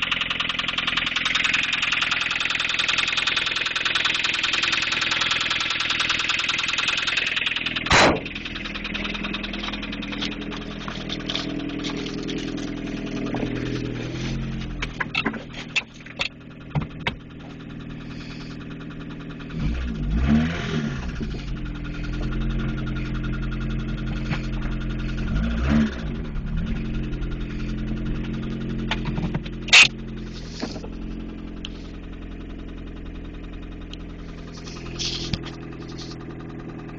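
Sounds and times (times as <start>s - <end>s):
car engine running: 0.0s - 36.9s
fast ticking engine clatter: 0.0s - 36.9s
engine revving: 4.1s - 15.8s, 16.6s - 36.9s
sharp bang: 7.9s - 8.3s.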